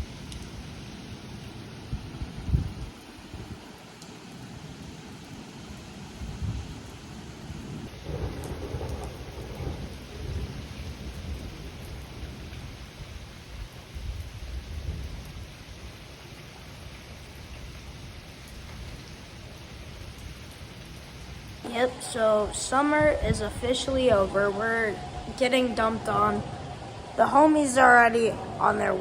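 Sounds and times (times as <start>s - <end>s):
heavy rain pouring: 0.0s - 29.0s
thunder rumbling: 7.6s - 13.1s, 14.0s - 15.5s, 21.5s - 29.0s.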